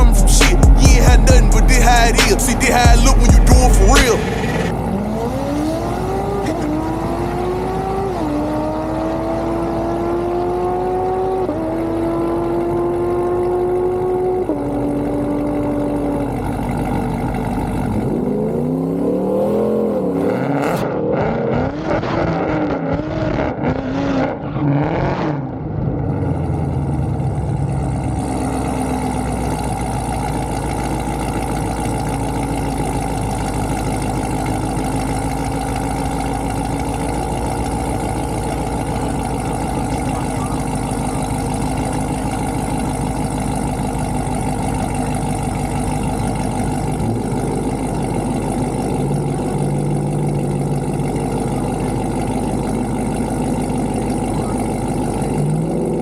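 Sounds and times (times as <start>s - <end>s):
engine clatter: 0.0s - 23.7s, 25.5s - 56.0s
car engine revving: 0.0s - 56.0s.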